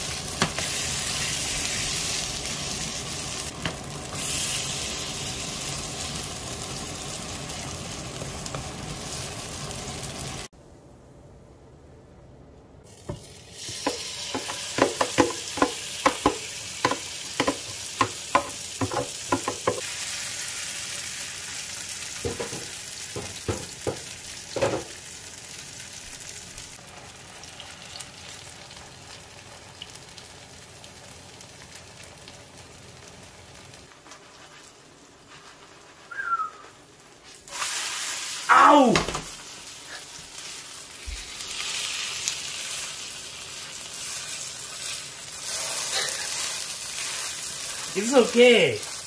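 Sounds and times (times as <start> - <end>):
batter sizzling in hot oil: 0.0 - 10.5, 12.8 - 49.0
sharp taps and knocks in pan: 13.1 - 19.8, 22.2 - 25.0.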